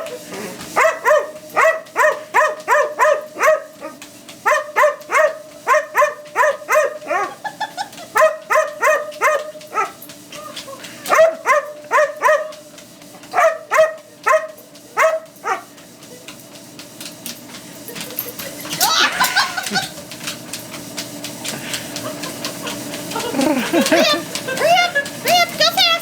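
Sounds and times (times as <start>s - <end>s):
treadmill humming: 0.0s - 26.0s
dog barking: 0.7s - 7.4s, 8.2s - 10.0s, 11.1s - 12.6s, 13.3s - 15.7s.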